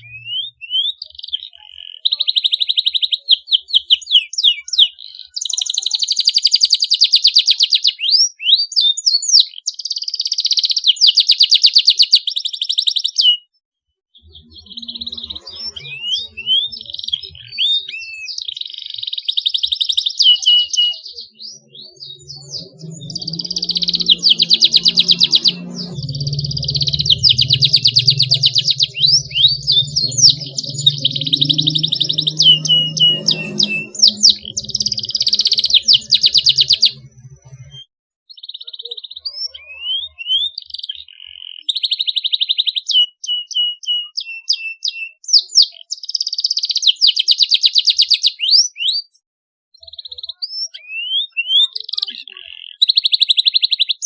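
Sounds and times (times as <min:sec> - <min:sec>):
canary singing: 0:00.0 - 0:08.4, 0:14.2 - 0:37.8
low rumble: 0:21.6 - 0:37.8.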